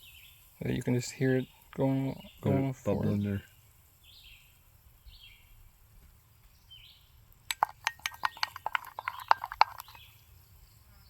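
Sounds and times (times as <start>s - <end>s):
sharp clicks and taps: 7.5s - 10.0s.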